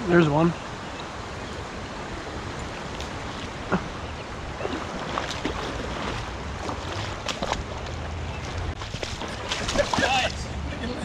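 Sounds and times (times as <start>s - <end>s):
creek water running: 0.0s - 11.0s
sharp clicks and splashes: 4.7s - 10.5s.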